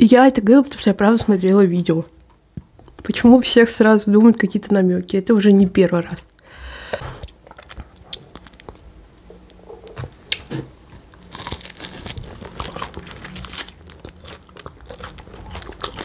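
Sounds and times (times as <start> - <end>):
person chewing crunchy pastry: 7.1 - 8.9, 9.5 - 16.0.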